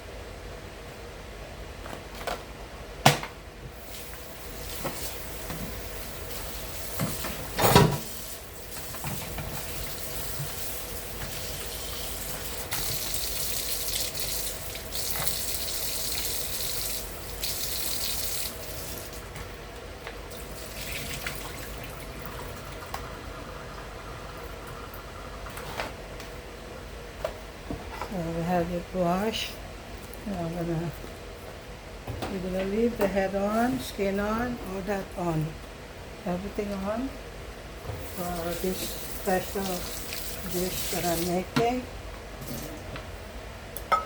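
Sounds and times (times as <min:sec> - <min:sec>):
shrimp rinsed by hand: 0:03.8 - 0:19.3, 0:20.3 - 0:22.6, 0:38.0 - 0:41.5.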